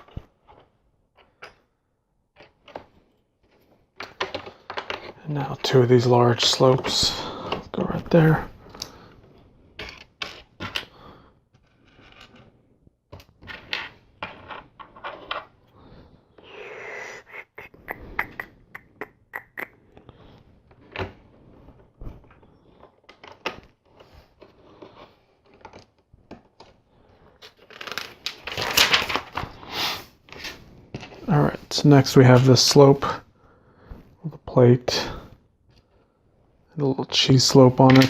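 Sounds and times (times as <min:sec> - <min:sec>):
clatter of loose pieces: 0:02.3 - 0:05.2, 0:27.4 - 0:29.5.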